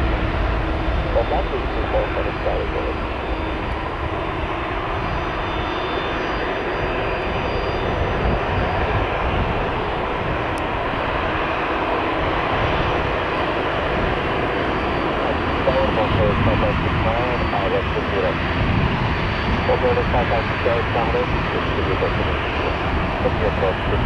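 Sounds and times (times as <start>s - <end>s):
jet engines running: 0.0s - 24.0s.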